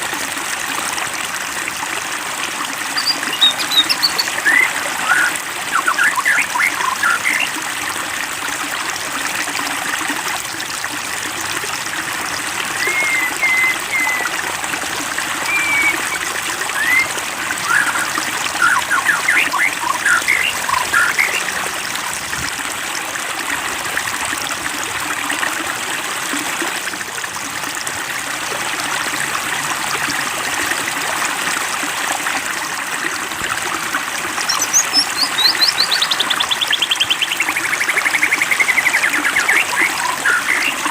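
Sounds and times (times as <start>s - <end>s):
water trickling and splashing: 0.0s - 40.9s
bird chirps and whistles: 3.0s - 7.5s, 12.8s - 14.3s, 15.4s - 21.4s, 34.5s - 40.9s.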